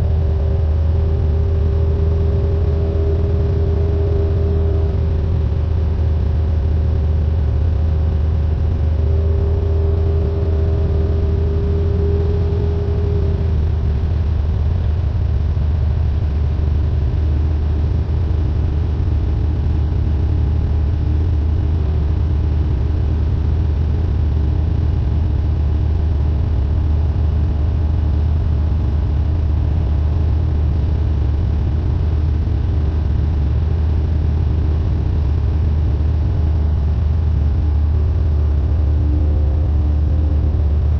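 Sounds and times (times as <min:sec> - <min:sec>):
airplane engine and propeller droning: 0:00.0 - 0:40.9
faint high wavering tone: 0:08.8 - 0:13.8, 0:38.4 - 0:40.9.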